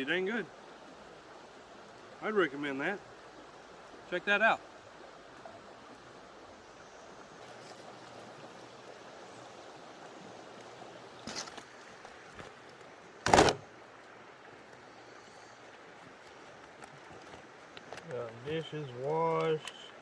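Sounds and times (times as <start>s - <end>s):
creek running: 0.0s - 20.0s
short loud impact: 13.2s - 13.6s.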